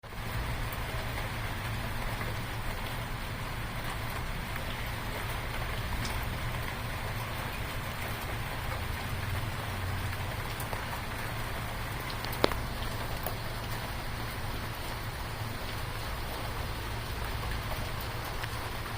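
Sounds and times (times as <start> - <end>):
steady rain falling: 0.0 - 18.9
raindrop ticks: 3.8 - 18.9.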